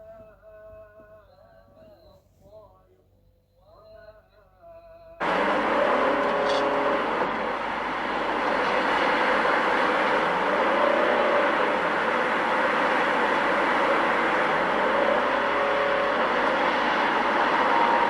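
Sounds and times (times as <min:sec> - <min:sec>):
faint rising tones: 0:05.2 - 0:18.0
road traffic noise: 0:05.2 - 0:18.0.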